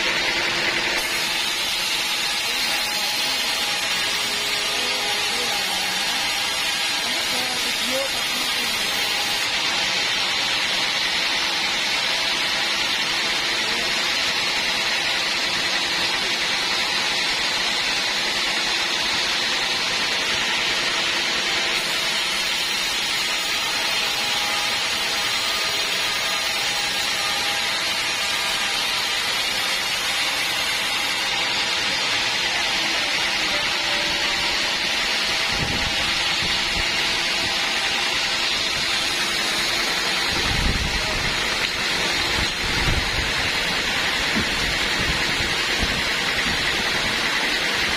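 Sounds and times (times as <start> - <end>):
band saw hissing: 0.8 - 14.1.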